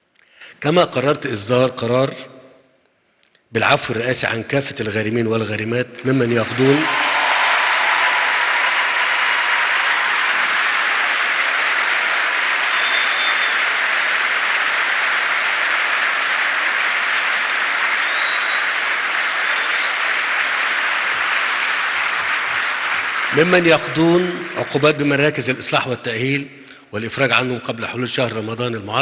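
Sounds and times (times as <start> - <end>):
audience applauding: 6.0 - 25.5.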